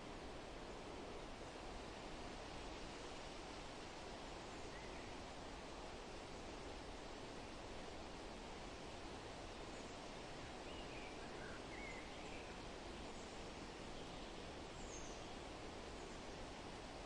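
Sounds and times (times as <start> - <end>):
wind rustling leaves: 0.0 - 17.0
faint bird chirps: 10.6 - 15.4.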